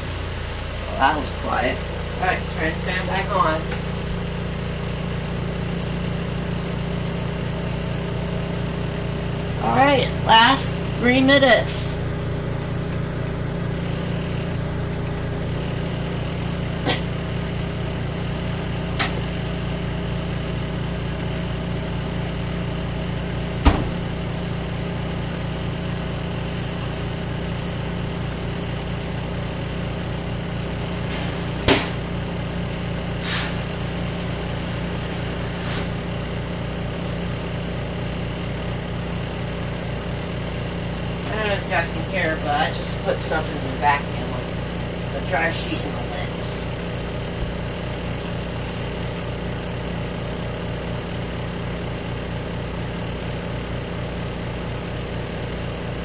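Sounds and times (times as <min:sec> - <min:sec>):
exhaust fan humming: 0:00.0 - 0:56.0
washing machine humming: 0:00.0 - 0:56.0
sharp knock: 0:23.6 - 0:24.0.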